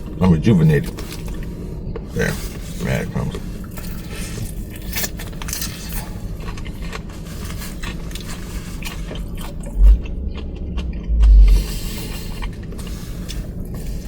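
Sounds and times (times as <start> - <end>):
steady low hum: 0.0 - 14.0
person chewing crunchy food: 0.8 - 14.0
dull low thump: 9.6 - 12.0.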